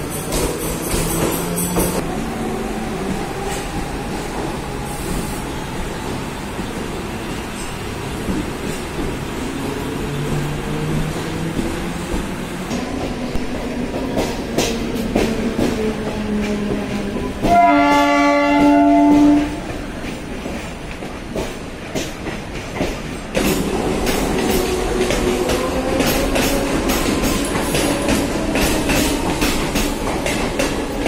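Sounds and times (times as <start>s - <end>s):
train rumbling: 0.0s - 31.0s
train horn: 17.4s - 19.7s.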